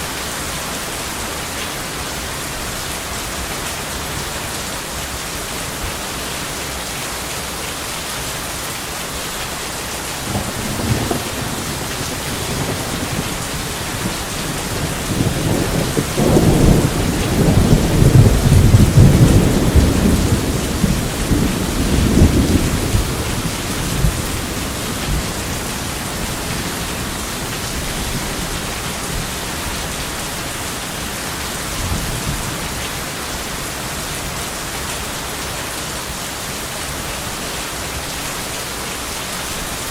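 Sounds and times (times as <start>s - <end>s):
heavy rain: 0.0s - 39.9s
thunder rumbling: 10.2s - 30.2s.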